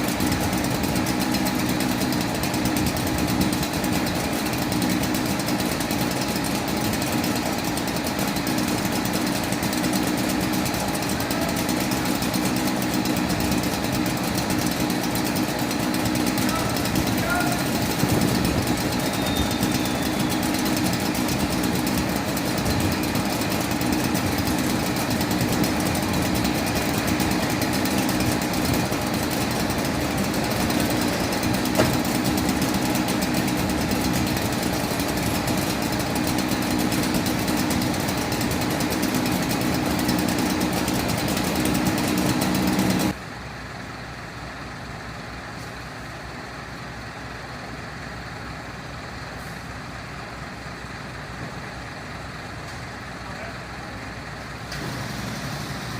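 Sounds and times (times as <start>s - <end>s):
motor rattling and hammering: 0.0s - 43.2s.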